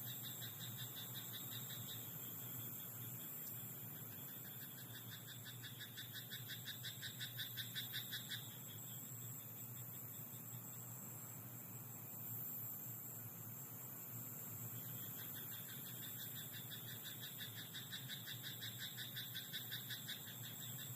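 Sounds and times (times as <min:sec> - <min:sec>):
frog croaking: 0:04.3 - 0:08.6, 0:15.0 - 0:20.9.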